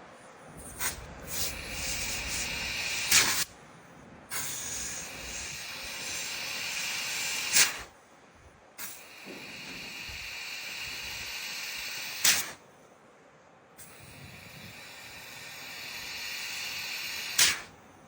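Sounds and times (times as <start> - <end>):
gas hissing through a coil: 0.6 - 3.5, 4.3 - 8.0, 8.8 - 12.6, 13.8 - 17.8
loud blast of gas: 0.8 - 3.5, 4.3 - 7.9, 8.8 - 12.6, 13.8 - 17.8.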